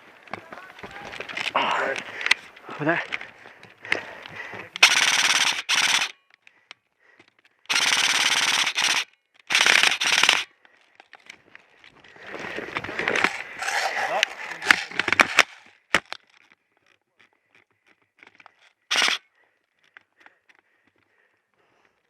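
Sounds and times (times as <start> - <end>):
airsoft rifle firing bursts: 4.8 - 6.2, 7.7 - 10.5, 18.9 - 19.2.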